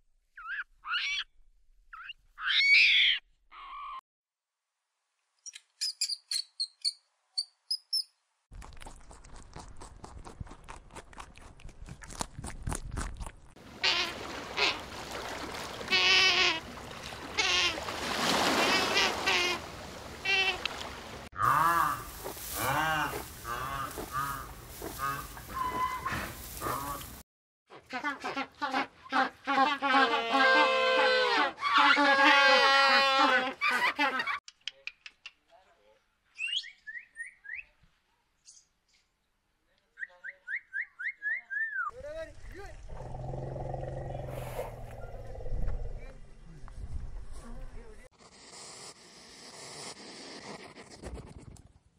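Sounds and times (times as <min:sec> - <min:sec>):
sea otter squeaks: 0:00.4 - 0:01.3, 0:01.9 - 0:04.0.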